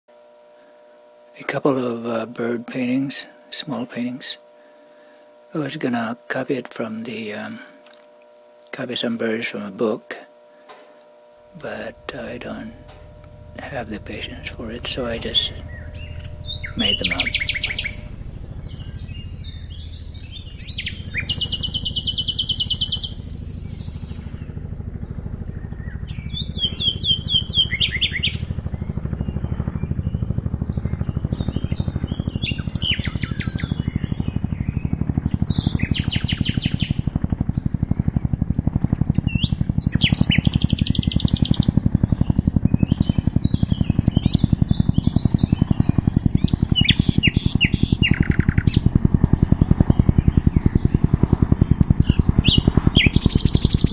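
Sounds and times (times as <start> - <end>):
helicopter rotor beat: 0.2 - 53.9
nightingales singing: 11.5 - 53.9.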